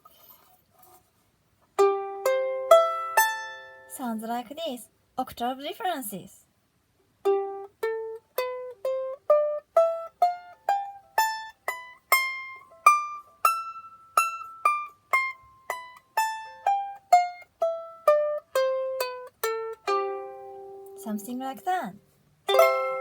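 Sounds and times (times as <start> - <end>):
ukulele plucked notes: 1.8 - 3.9, 7.2 - 21.3, 22.4 - 23.0.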